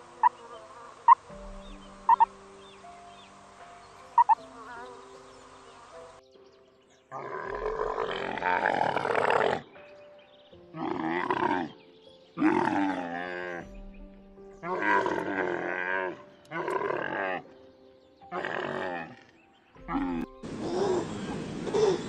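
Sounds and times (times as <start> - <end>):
soft music with sustained tones: 0.0 - 22.0
camel calling: 2.0 - 2.3, 4.1 - 4.9.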